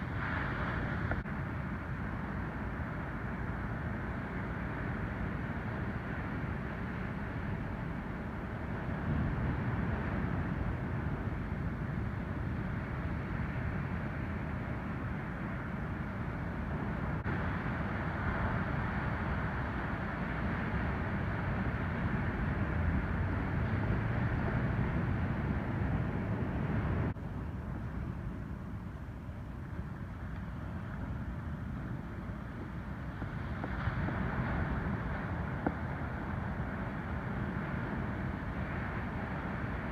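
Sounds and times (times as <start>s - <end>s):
ocean waves breaking: 0.0s - 1.6s, 30.8s - 39.9s.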